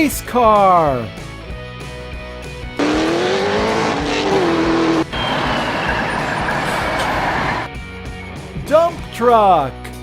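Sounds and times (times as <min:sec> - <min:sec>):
race car engine: 0:02.6 - 0:07.7
steady rushing roar: 0:02.8 - 0:07.7.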